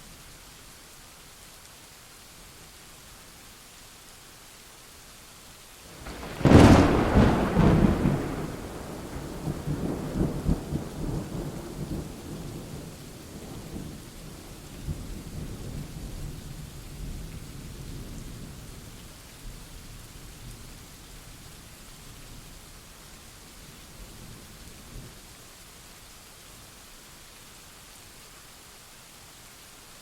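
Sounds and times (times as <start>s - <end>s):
steady rain: 0.0s - 30.0s
thunder rumbling: 6.0s - 14.0s.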